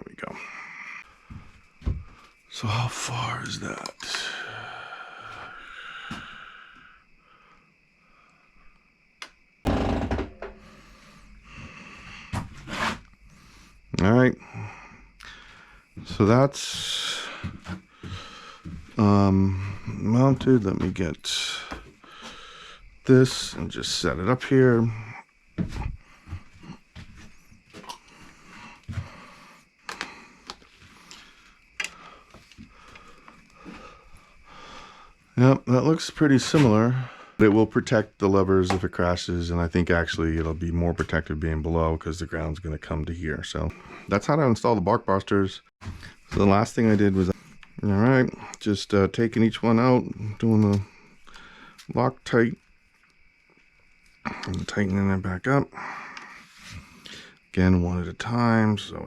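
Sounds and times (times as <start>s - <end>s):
parts rustling and scraping: 12.3s - 13.2s.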